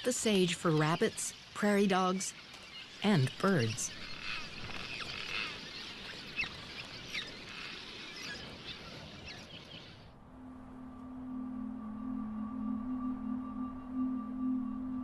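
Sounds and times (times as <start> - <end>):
birds chirping: 0.0 - 10.2
low sustained music tone: 10.1 - 15.0.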